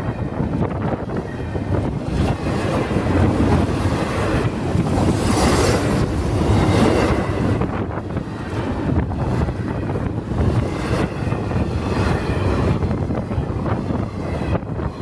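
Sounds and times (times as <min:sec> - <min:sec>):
wind buffeting microphone: 0:00.0 - 0:15.0
freight train cars rolling: 0:01.2 - 0:08.8.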